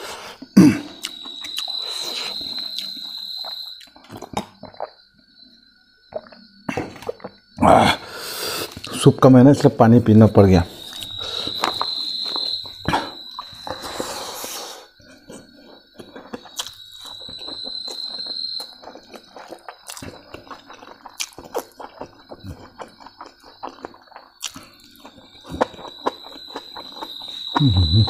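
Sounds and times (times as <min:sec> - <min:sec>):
wet chewing: 0:10.8 - 0:14.1, 0:15.2 - 0:28.0
high-pitched tone: 0:27.6 - 0:28.0.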